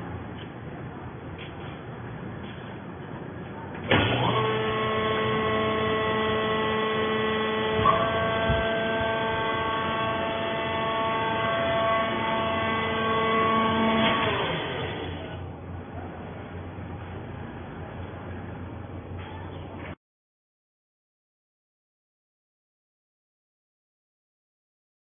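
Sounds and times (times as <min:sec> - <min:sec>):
baler motor clunk: 0:03.7 - 0:15.5
hydraulic motor whine: 0:03.8 - 0:15.5.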